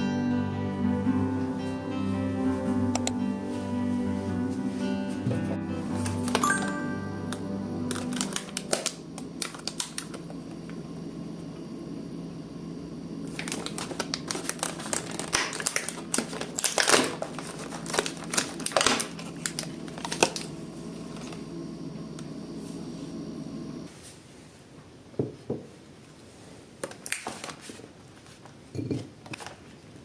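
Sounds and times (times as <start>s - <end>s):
faint steady hum: 0.0s - 30.0s
crinkling rustles: 7.9s - 10.2s, 13.3s - 21.4s, 26.8s - 29.8s.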